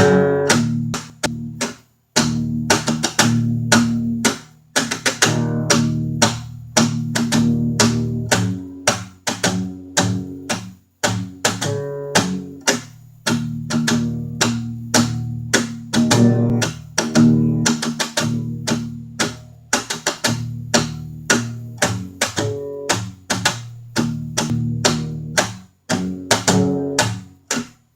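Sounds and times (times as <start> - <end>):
blues guitar picking: 0.0 - 27.8
sustained low bass notes: 14.1 - 19.1.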